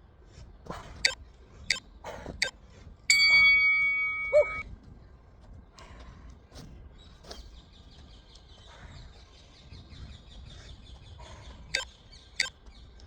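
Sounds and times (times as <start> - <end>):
bird calls: 3.1 - 4.6.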